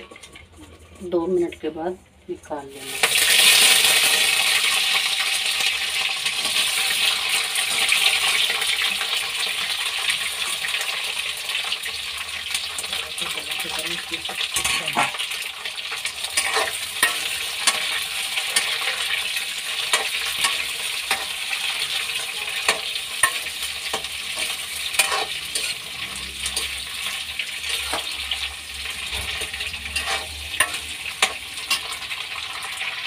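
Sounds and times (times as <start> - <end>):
spatula scraping a pan: 0.0 - 1.5, 12.8 - 32.7
peppers sizzling in oil: 0.0 - 1.7, 2.6 - 33.0.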